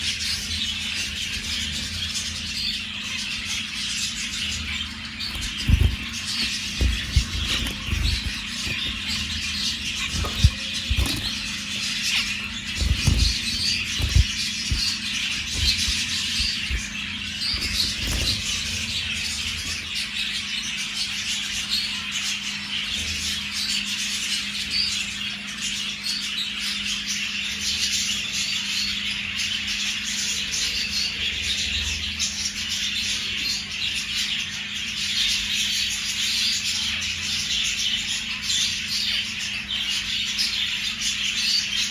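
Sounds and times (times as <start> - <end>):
steady low hum: 0.0 - 21.0
finches chattering: 0.0 - 41.9
low thumps: 5.3 - 19.8.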